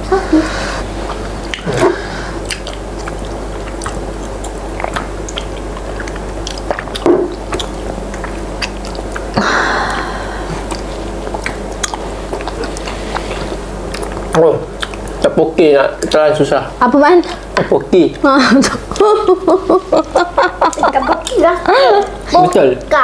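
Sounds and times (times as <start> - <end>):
wet chewing and smacking: 1.0 - 1.8, 2.4 - 15.3, 20.7 - 22.6.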